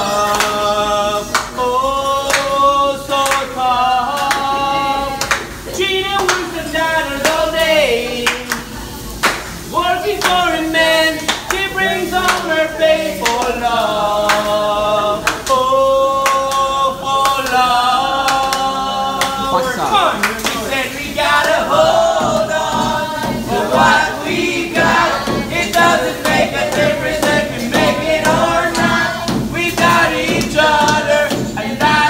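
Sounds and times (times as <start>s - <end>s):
people singing together: 0.0s - 32.0s
hand claps: 0.2s - 0.6s, 1.3s - 1.6s, 2.2s - 3.5s, 4.1s - 4.5s, 5.2s - 6.5s, 7.2s - 10.5s, 11.2s - 12.6s, 13.2s - 14.6s, 15.2s - 17.6s, 18.2s - 19.6s, 20.2s - 20.7s, 21.3s - 32.0s.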